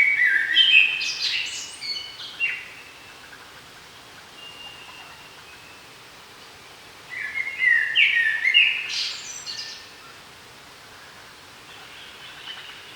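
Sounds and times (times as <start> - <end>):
songbird singing: 0.0 - 3.6, 4.2 - 10.3, 11.0 - 12.9
faint background hiss: 0.0 - 12.9.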